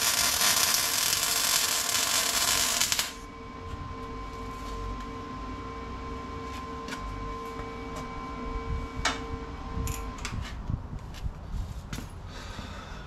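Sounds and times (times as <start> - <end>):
machine hum: 0.0 - 11.5
wind rumbling on microphone: 8.6 - 11.9.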